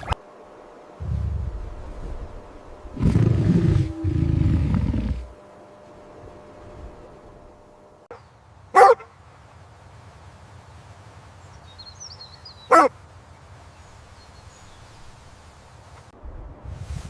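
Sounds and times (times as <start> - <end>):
dog barking: 8.7 - 9.1, 12.7 - 12.9.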